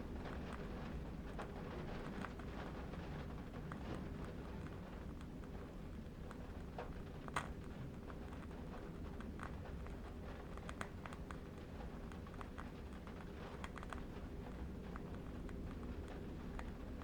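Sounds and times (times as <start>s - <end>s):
low wind rumble: 0.0s - 17.0s.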